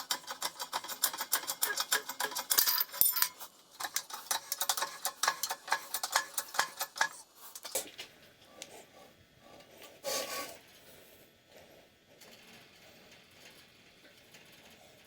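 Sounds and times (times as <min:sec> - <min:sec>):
small metal parts clicking: 0:00.0 - 0:07.8
short scraping rub: 0:10.0 - 0:10.6.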